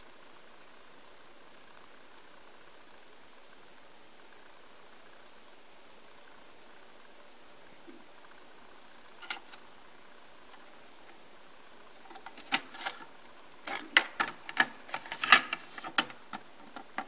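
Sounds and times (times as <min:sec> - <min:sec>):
cassette door plastic clicks: 0:12.1 - 0:13.1, 0:13.7 - 0:17.0.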